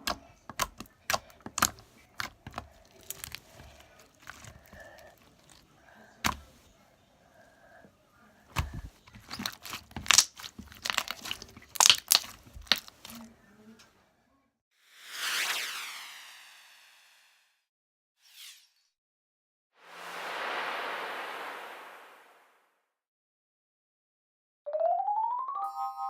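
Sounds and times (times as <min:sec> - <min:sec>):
slime sticky pops and crackles: 0:00.0 - 0:04.8, 0:09.2 - 0:13.2.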